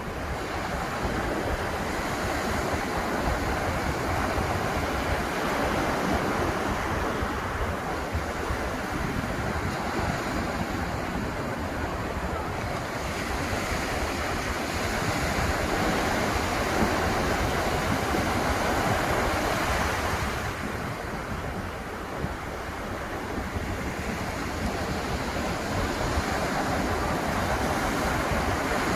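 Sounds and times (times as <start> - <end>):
ocean surf washing onto beach: 0.0 - 28.9
wind rumbling on microphone: 0.0 - 28.9.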